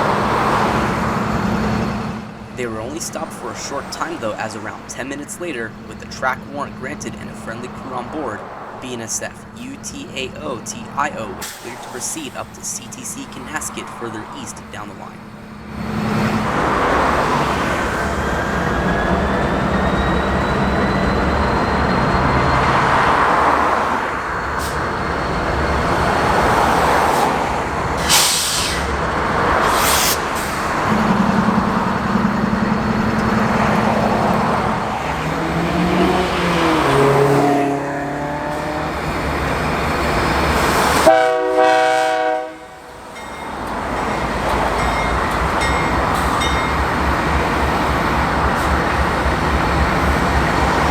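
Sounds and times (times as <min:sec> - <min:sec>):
locomotive engine rumble: 0:00.0 - 0:41.2, 0:42.7 - 0:50.9
train horn blast: 0:35.8 - 0:38.8, 0:41.0 - 0:42.9.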